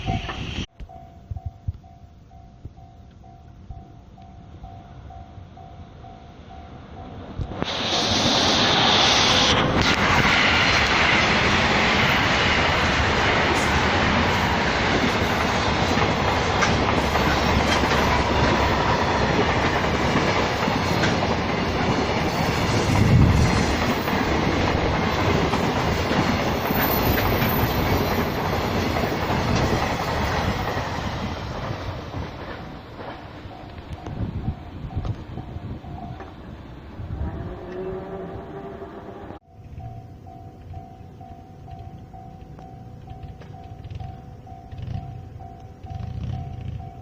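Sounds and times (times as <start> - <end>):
train wheels rushing on rails: 6.8 - 47.0.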